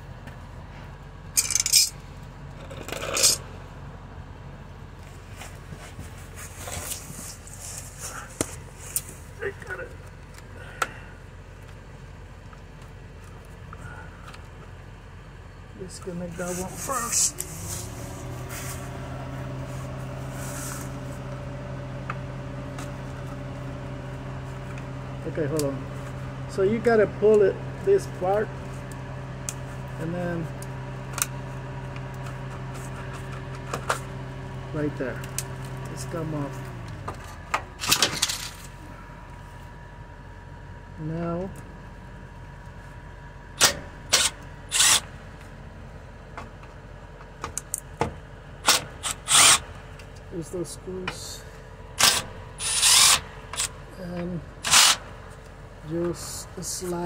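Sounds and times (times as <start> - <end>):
steady hum: 0.0 - 57.0
loud handling noises: 36.8 - 38.8.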